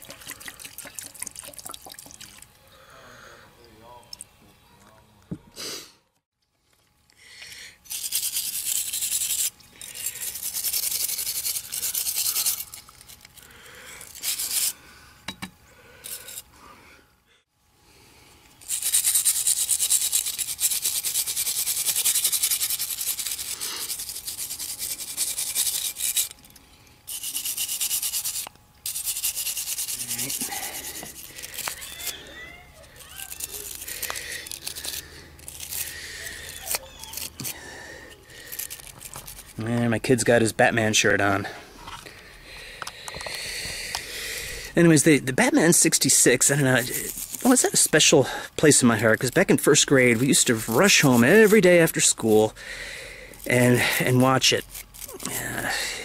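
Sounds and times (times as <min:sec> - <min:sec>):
scrubbing on metal toy car: 0:07.9 - 0:13.3, 0:14.0 - 0:14.7, 0:18.6 - 0:26.4, 0:27.1 - 0:39.6, 0:44.9 - 0:52.5, 0:53.4 - 0:55.8.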